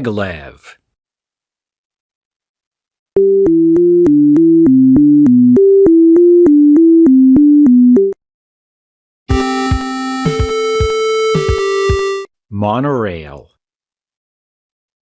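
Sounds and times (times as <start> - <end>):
synthesizer melody: 3.2 - 8.2, 9.3 - 12.3
electronic chord: 9.3 - 12.3.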